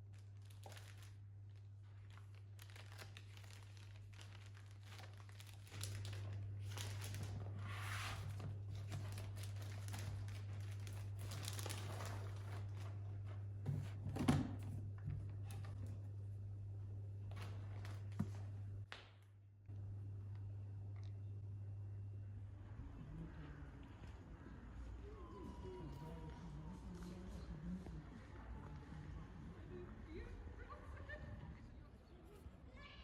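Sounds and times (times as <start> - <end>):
wrapping crinkling: 0.0 - 13.5
low hum: 19.5 - 31.9.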